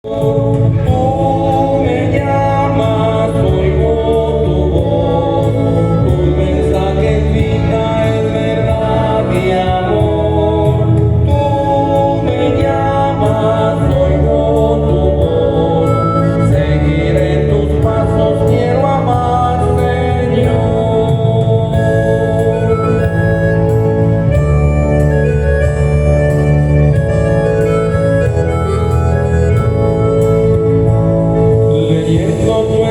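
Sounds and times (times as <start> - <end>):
organ bass line: 0.0 - 32.9
church choir singing a hymn: 0.1 - 22.9.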